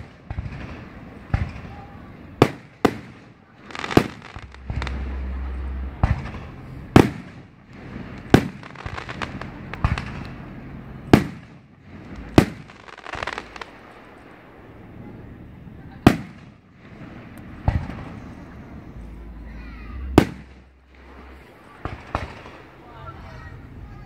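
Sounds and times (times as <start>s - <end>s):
small firework pops: 0.0s - 5.0s, 8.2s - 10.4s
firework hiss: 0.0s - 15.0s
firework bangs: 0.0s - 23.5s.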